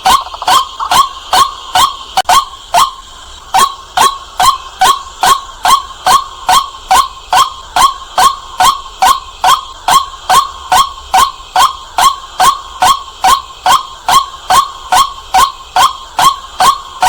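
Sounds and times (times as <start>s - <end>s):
waterhen calling: 0.0s - 3.0s.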